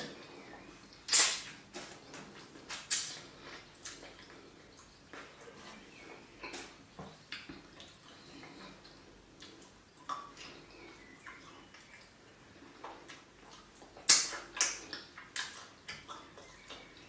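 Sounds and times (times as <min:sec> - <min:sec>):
wet mouth smacks while chewing: 0:12.8 - 0:16.9.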